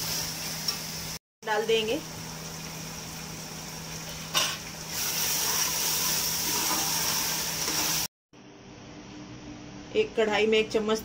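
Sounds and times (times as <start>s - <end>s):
food sizzling in hot oil: 0.0s - 8.1s.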